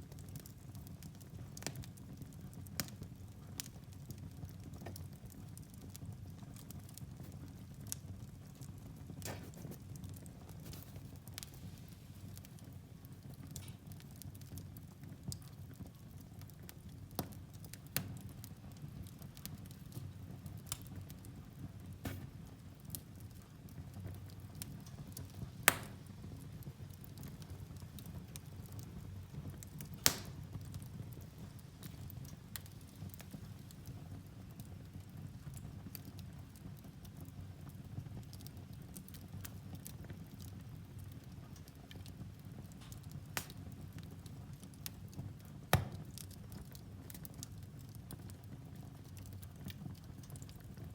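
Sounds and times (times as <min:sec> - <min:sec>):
fire rumbling and crackling: 0:00.0 - 0:50.9
loud sharp pops: 0:22.0 - 0:22.4, 0:25.6 - 0:26.0, 0:30.0 - 0:30.6, 0:45.7 - 0:46.1.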